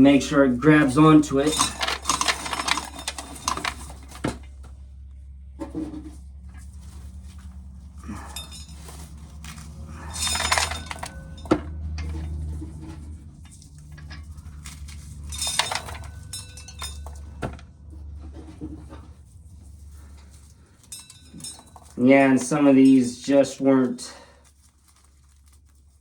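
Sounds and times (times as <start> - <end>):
corn kernels rattling: 0.6 - 4.4, 6.7 - 11.5, 13.3 - 17.4.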